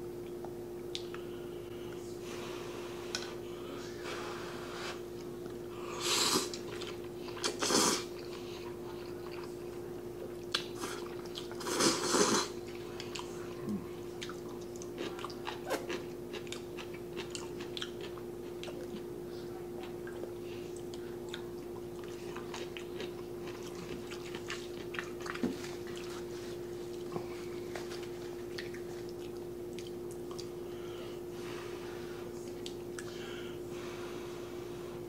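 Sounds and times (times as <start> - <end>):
steady hum: 0.0 - 35.0
wet chewing mouth clicks: 28.5 - 30.5.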